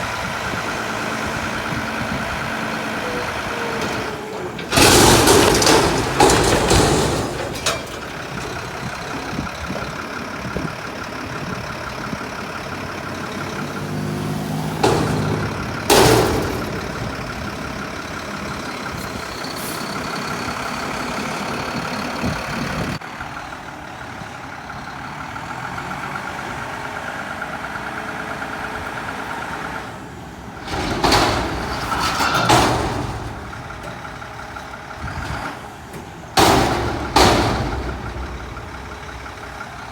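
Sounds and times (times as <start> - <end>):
garbage truck engine revving: 0.0 - 23.0, 25.0 - 39.9
loud bangs: 3.7 - 10.1, 14.2 - 23.0, 30.6 - 39.9.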